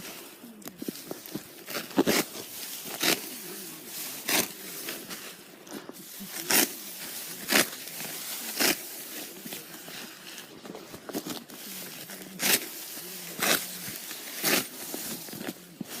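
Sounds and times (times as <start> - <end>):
sickle cutting rice stalks: 0.0 - 16.0.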